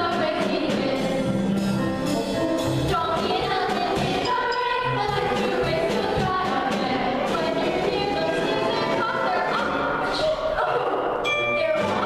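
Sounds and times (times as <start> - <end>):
group of voices singing: 0.0 - 1.5, 2.8 - 11.0
instrumental accompaniment: 0.0 - 12.0.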